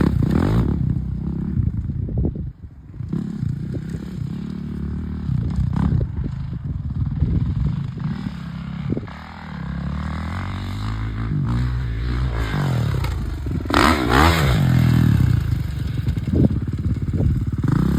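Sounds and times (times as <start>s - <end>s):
dirt bike engine revving: 0.0s - 1.6s, 7.4s - 17.9s.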